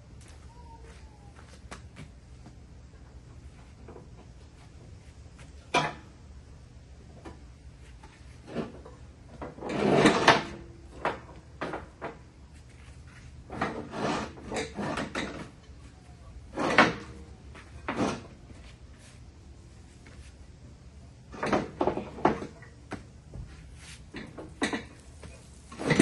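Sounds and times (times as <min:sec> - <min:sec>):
metal tools clunking and rattling: 0:24.2 - 0:25.0.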